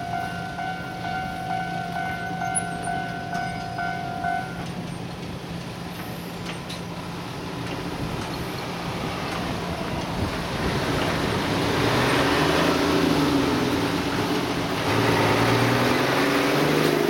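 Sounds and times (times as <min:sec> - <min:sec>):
level crossing warning bell: 0:00.0 - 0:05.1
diesel locomotive engine hum: 0:00.0 - 0:17.0.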